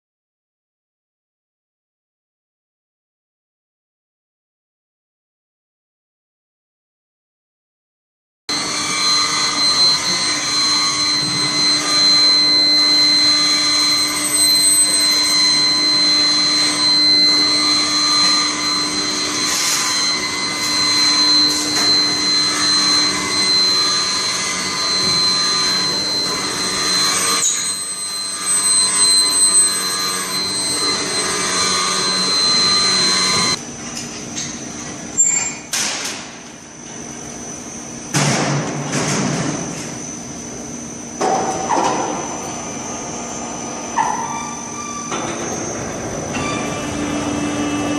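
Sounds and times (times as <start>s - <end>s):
high whine: 8.5s - 35.5s
industrial machine noise: 8.5s - 47.9s.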